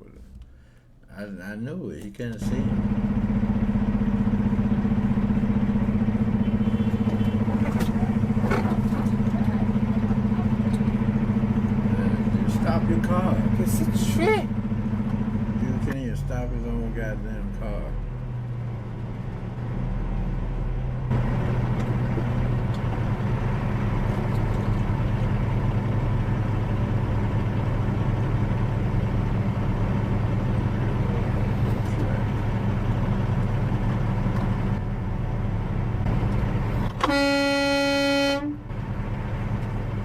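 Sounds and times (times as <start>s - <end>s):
vehicle engine and road noise: 0.0s - 40.0s
long horn blast: 6.3s - 7.6s, 36.9s - 38.8s.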